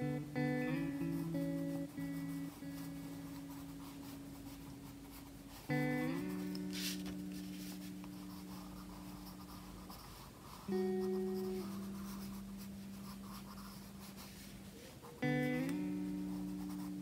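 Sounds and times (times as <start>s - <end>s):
soft guitar music: 0.0s - 17.0s
pencil scratching on paper: 6.8s - 14.3s.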